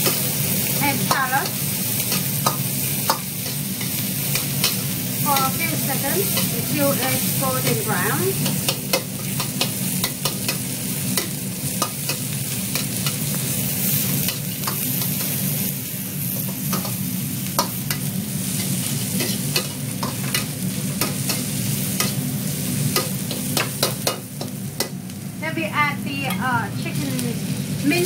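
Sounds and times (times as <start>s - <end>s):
vegetables sizzling in oil: 0.0s - 28.0s
utensil clicking against pan: 8.4s - 13.2s.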